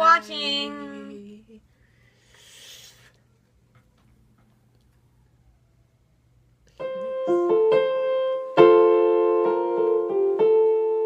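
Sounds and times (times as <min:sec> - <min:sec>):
piano melody: 0:06.8 - 0:11.0.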